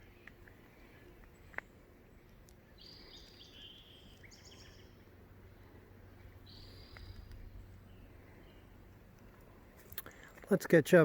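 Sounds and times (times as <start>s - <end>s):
songbird whistling: 2.8s - 5.0s, 6.4s - 8.6s.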